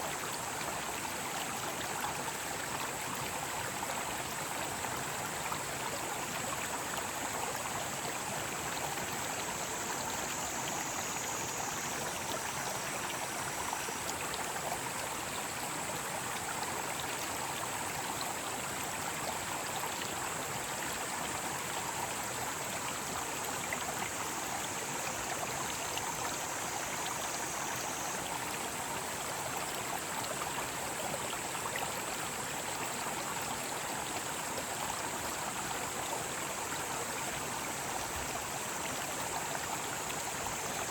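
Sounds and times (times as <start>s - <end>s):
stream rushing over rocks: 0.0s - 40.9s
cicadas droning: 5.2s - 40.9s.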